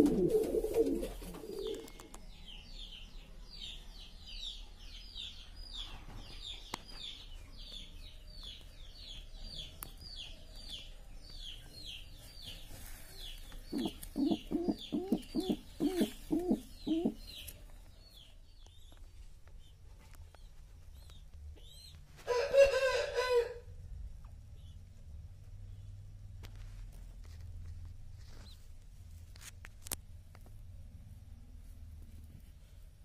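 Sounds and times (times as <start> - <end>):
low clucking bird calls: 0.0 - 2.2, 12.5 - 17.6
rapid high bird peeps: 13.7 - 17.4.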